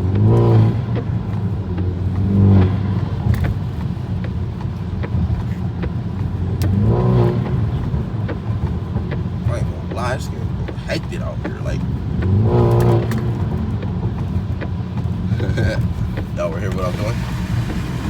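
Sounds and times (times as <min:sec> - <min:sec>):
car engine running: 0:00.0 - 0:18.0
road rumble: 0:00.0 - 0:18.0.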